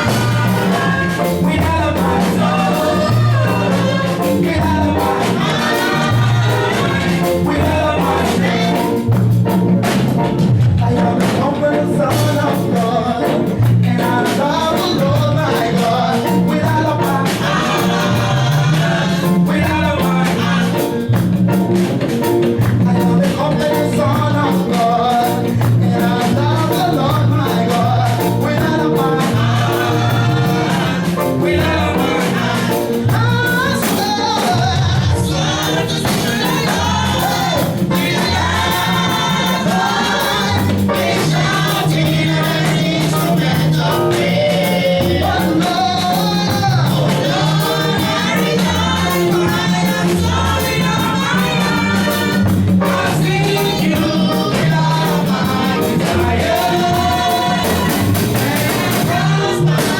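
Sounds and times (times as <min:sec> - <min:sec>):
voices singing together: 0:00.0 - 0:10.2, 0:10.8 - 0:59.9
band with bass and drums: 0:00.0 - 0:59.9.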